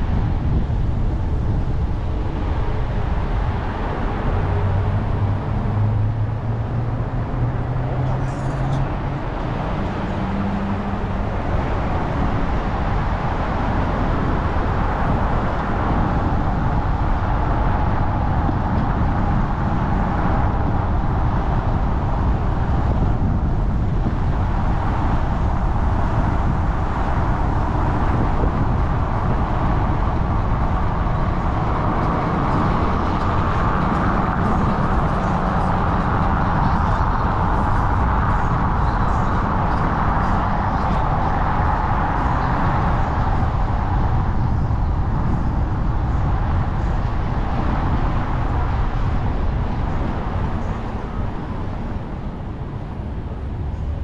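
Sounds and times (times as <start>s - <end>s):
vehicle rumble and road noise: 0.0s - 54.0s.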